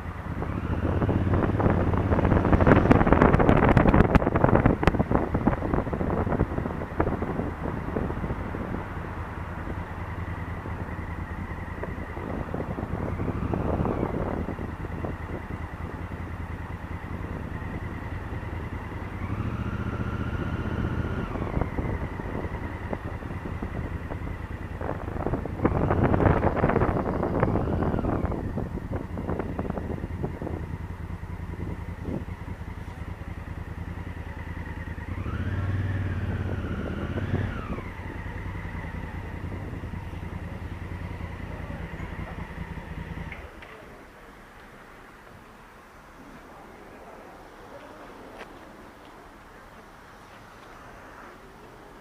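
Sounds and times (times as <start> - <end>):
motorcycle engine running: 0.0 - 44.0
wind rushing over camera: 0.2 - 16.0, 17.3 - 30.8.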